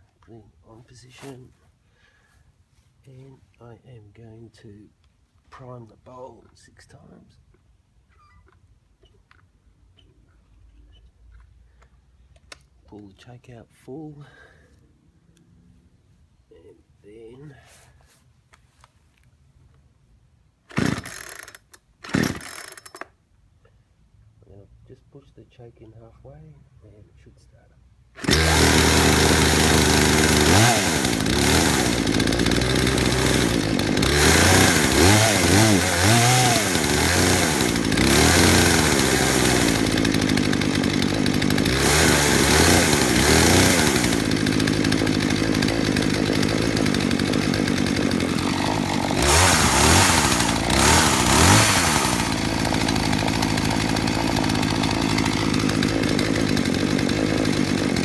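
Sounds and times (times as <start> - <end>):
chainsaw revving: 20.7 - 22.8, 28.2 - 58.0.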